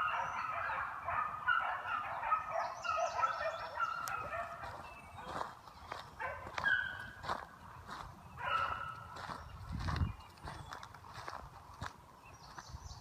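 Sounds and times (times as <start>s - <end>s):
beagles baying: 0.0s - 7.6s, 8.3s - 9.4s.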